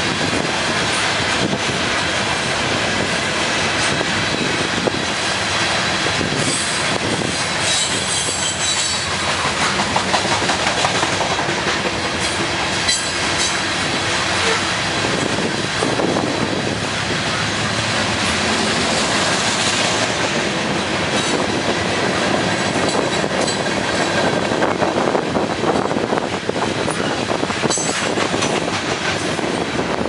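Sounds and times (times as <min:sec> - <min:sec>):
freight train cars rolling past: 0:00.0 - 0:30.0
high wheel squeal: 0:06.4 - 0:09.2.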